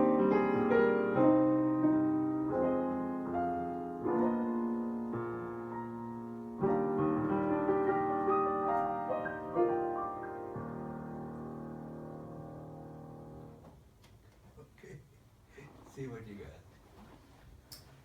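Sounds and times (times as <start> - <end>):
slow piano chords: 0.0 - 13.8.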